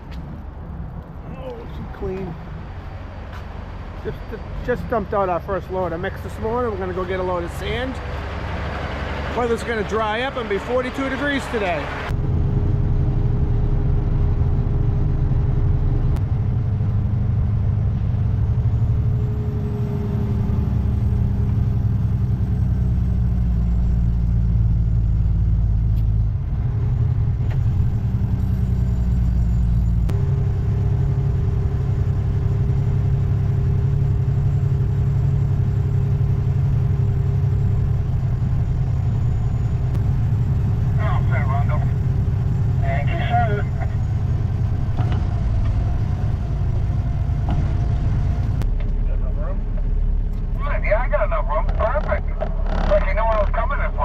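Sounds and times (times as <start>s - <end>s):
dump truck engine rumbling: 0.0s - 54.0s.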